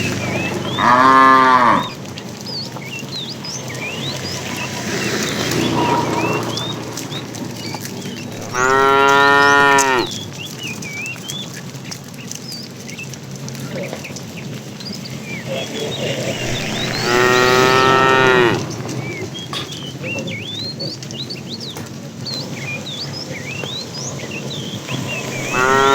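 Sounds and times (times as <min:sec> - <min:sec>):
cattle mooing: 0:00.3 - 0:02.0, 0:08.3 - 0:10.2, 0:16.3 - 0:18.8, 0:25.3 - 0:25.9.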